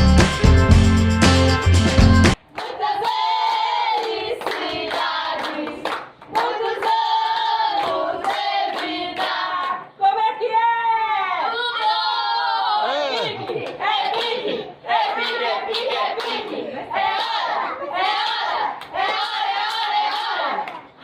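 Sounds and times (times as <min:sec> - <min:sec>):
rhythmic hand clapping: 0:00.0 - 0:09.8, 0:13.1 - 0:20.9
group of voices singing together: 0:02.6 - 0:10.0, 0:11.5 - 0:21.0.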